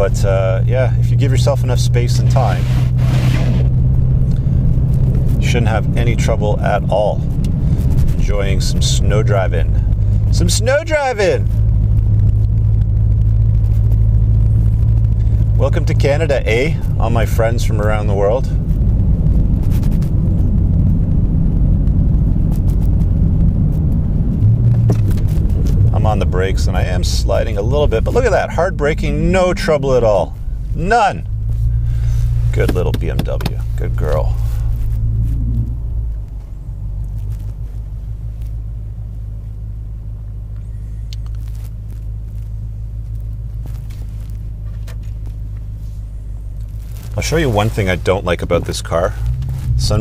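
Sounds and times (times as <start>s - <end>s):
car driving rumble on snow: 0.0s - 50.0s
low hum: 0.0s - 50.0s
faint clicks: 40.5s - 42.5s.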